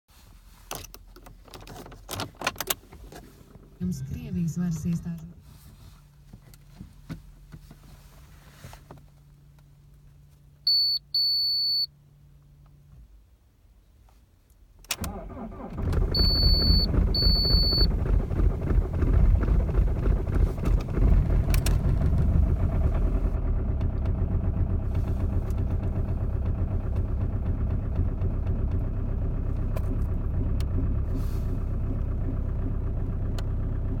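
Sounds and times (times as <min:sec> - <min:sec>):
short high beeps: 0:10.7 - 0:11.9, 0:16.2 - 0:17.9
diesel engine starting and idling: 0:14.9 - 0:34.0.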